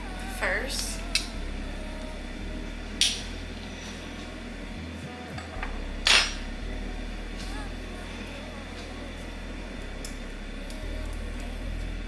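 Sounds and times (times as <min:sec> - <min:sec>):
kitchenware clanking: 0:05.4 - 0:06.4.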